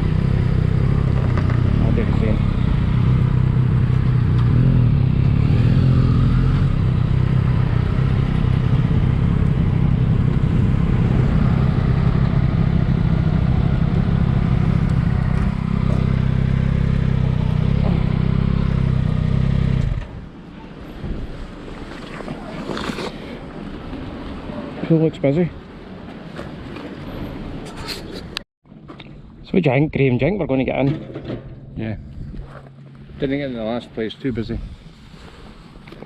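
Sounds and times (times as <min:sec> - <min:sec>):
motorcycle engine idling: 0:06.7 - 0:19.6.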